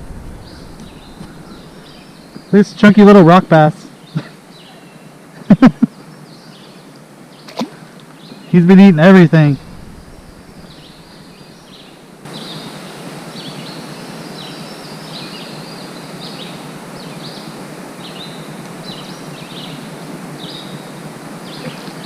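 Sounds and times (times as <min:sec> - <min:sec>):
outdoor background hiss: 0:00.0 - 0:22.0
small bird chirping: 0:00.3 - 0:02.6.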